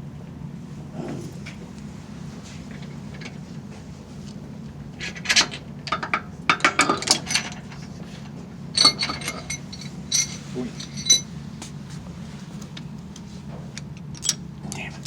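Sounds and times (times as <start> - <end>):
steady low hum: 0.0 - 15.0
metal tools clinking: 5.0 - 8.0, 8.8 - 11.4, 14.1 - 14.9.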